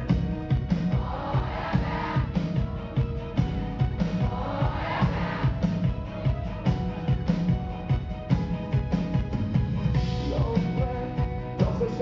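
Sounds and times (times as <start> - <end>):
pop-rock band playing: 0.0 - 12.0
person singing: 10.2 - 12.0.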